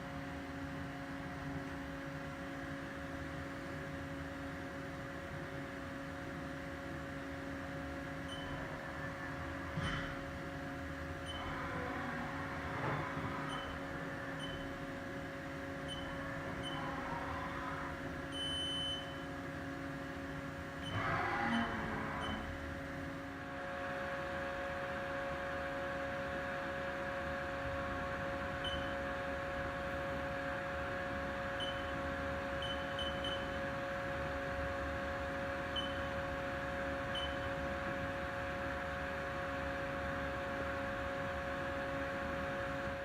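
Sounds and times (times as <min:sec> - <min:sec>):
milling machine hum: 0:00.1 - 0:43.0
steady machine tone: 0:08.2 - 0:09.5, 0:11.2 - 0:14.9, 0:15.8 - 0:19.4, 0:20.8 - 0:22.6, 0:28.2 - 0:34.0, 0:35.6 - 0:37.7.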